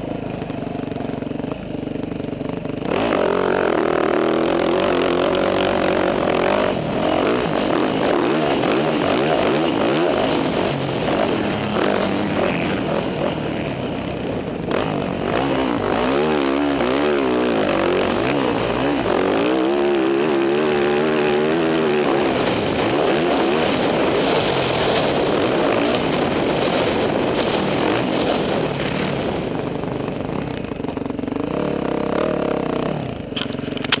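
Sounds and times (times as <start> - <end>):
dirt bike engine revving: 0.0 - 34.0
wind noise: 5.3 - 30.8.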